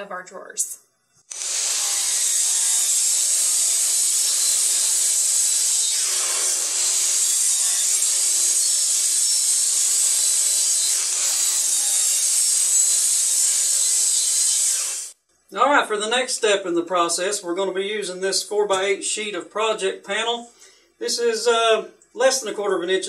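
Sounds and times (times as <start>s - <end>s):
miter saw whining: 1.3s - 15.2s.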